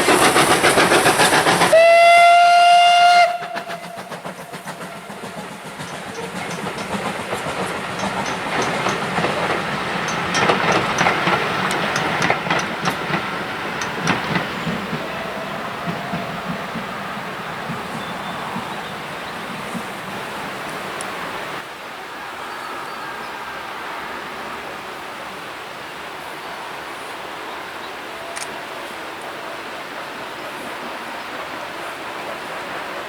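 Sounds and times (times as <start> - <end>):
steam locomotive exhaust beats: 0.0 - 21.6
train rumbling on rails: 0.0 - 33.0
steam whistle blast: 1.7 - 4.2
wheel clicks: 5.8 - 14.8.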